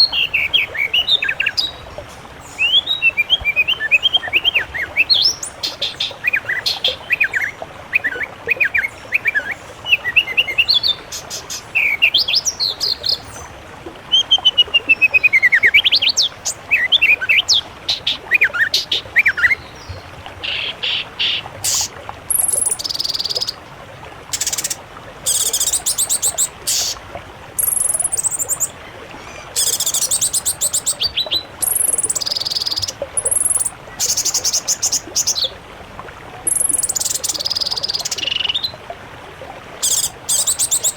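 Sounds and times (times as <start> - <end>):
whistled birdsong phrases: 2.5 - 13.5, 29.3 - 35.5, 39.8 - 40.9
buzzy trilling birdsong: 20.5 - 23.6, 24.4 - 27.0, 39.8 - 40.9.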